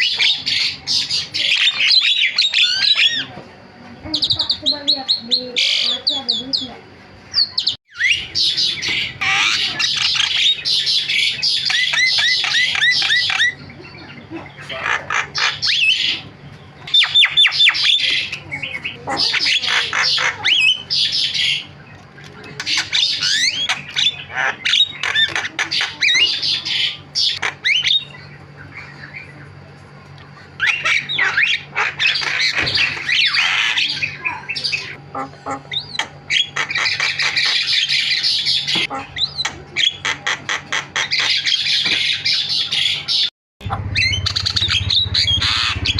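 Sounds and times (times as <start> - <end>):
bird chattering and whistling: 0.0 - 3.4, 4.1 - 29.6, 30.3 - 45.9.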